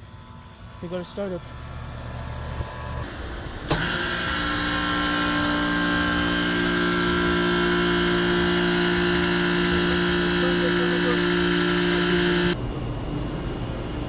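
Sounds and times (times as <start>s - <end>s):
air conditioner compressor humming: 0.0s - 3.1s, 4.1s - 14.0s
compressor kicking on with a jolt: 0.7s - 3.0s, 3.6s - 10.0s.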